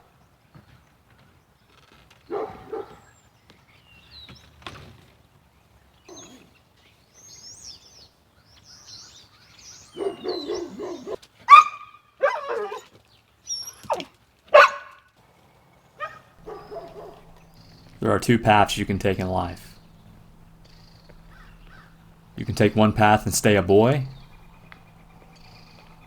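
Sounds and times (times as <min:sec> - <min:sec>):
dog barking: 0:02.3 - 0:03.1, 0:09.9 - 0:12.8, 0:13.9 - 0:15.0, 0:16.0 - 0:23.0
birds chirping: 0:06.1 - 0:06.4, 0:07.2 - 0:11.6, 0:16.0 - 0:26.0.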